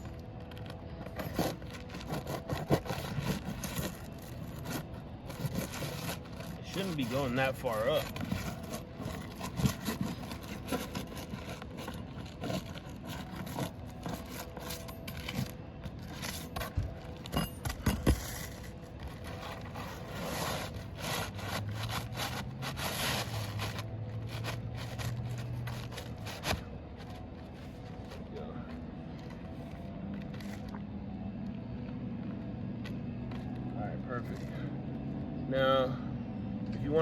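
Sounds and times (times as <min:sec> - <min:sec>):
low steady hum: 0:00.0 - 0:37.0
shingles scraping off roof: 0:01.2 - 0:16.8, 0:17.7 - 0:27.9.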